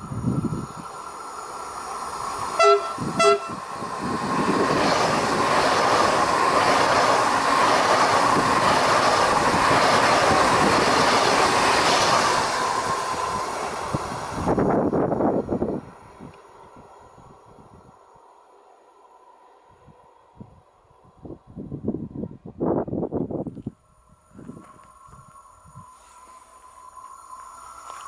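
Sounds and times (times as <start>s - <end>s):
train passing at speed: 0.0s - 28.0s
train horn blasts: 2.6s - 3.7s.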